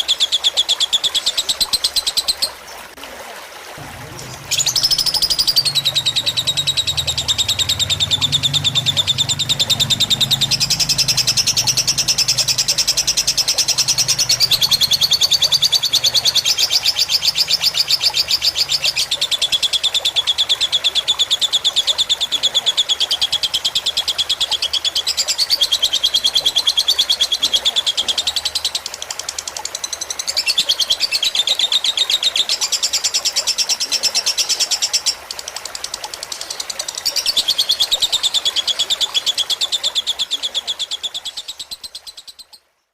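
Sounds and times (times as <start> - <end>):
lovebird chattering trill: 4.0 - 19.2.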